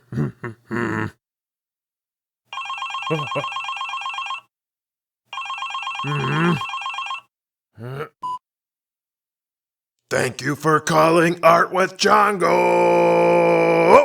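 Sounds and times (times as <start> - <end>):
telephone ringing: 2.5 - 4.5, 5.3 - 7.3.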